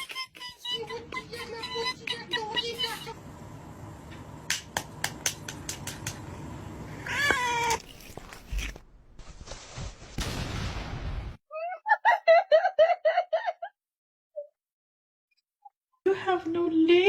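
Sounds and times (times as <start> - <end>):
cat meowing: 6.9 - 8.3.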